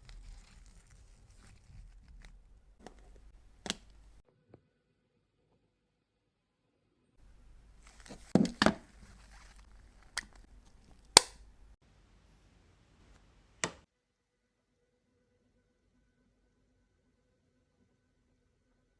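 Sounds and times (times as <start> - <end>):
faint rustling: 0.0 - 4.2, 7.2 - 11.8
sharp clicks and taps of cases: 2.8 - 4.2, 7.8 - 9.2.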